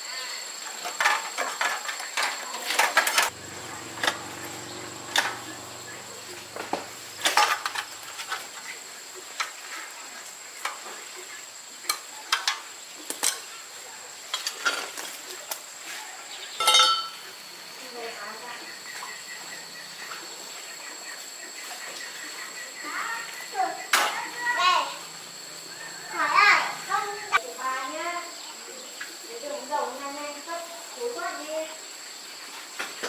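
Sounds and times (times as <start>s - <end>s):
metal tools clinking: 7.2s - 8.5s, 16.6s - 17.2s.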